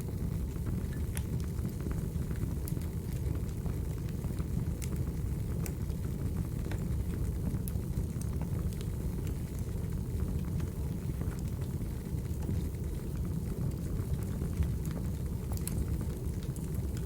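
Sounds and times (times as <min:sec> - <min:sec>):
low rumble of flames: 0:00.0 - 0:17.0
firewood crackling and popping: 0:00.9 - 0:01.5, 0:13.2 - 0:17.0.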